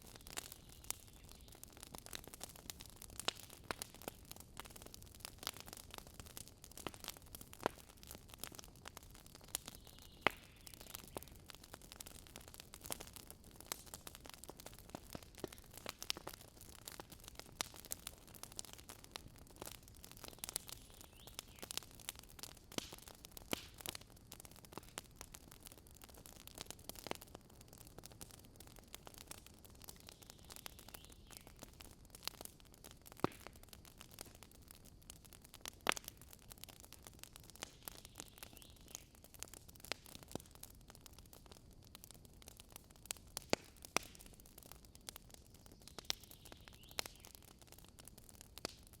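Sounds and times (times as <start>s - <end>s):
campfire crackling: 0.0s - 49.0s
sharp fire pops: 9.5s - 11.6s, 12.7s - 25.1s, 33.1s - 33.6s, 37.5s - 40.5s, 43.1s - 44.4s.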